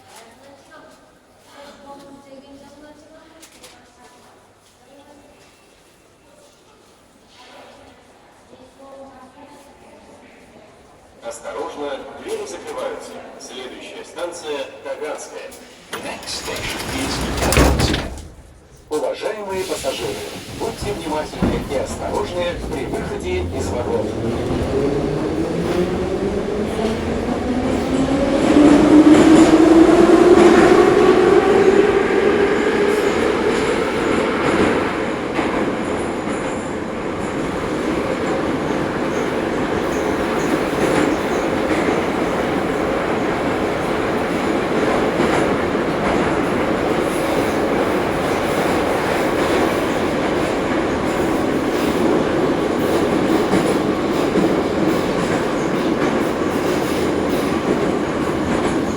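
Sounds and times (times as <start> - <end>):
train wheels rumbling on rail: 15.6 - 58.9
traction motors whining: 19.6 - 26.9.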